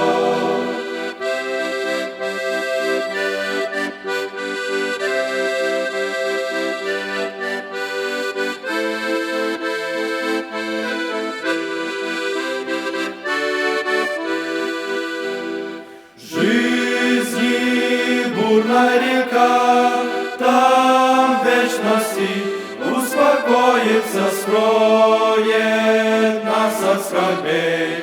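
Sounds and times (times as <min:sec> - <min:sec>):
instrumental hymn melody over chords: 0:00.0 - 0:28.0.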